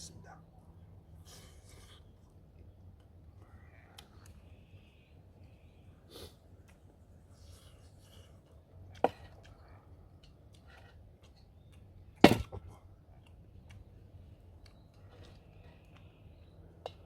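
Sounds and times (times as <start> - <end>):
sharp knocks: 12.2 - 12.6.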